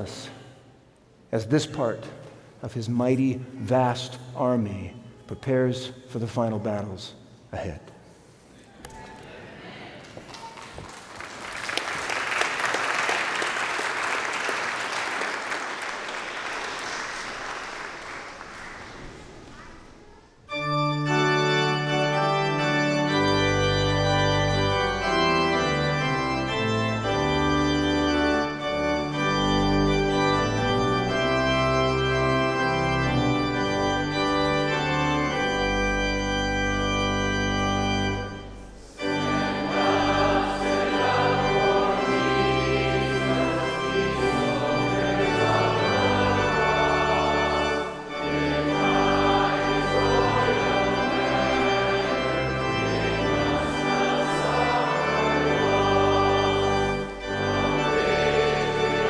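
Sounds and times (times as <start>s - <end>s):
organ playing chords: 0.0s - 0.4s, 11.4s - 19.0s, 20.4s - 59.0s.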